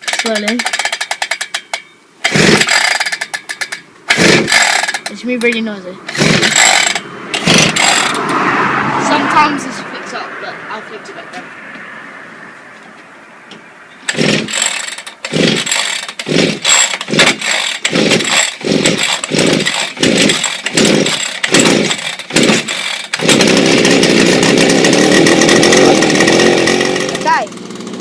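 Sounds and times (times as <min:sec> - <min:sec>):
two-stroke engine starting and running: 0:00.0 - 0:10.2, 0:14.0 - 0:28.0.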